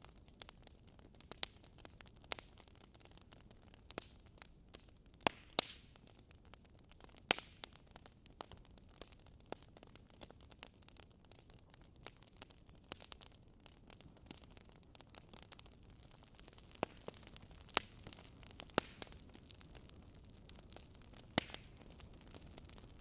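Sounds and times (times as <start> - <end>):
firewood crackling and popping: 0.0 - 23.0
low steady hiss: 0.0 - 23.0.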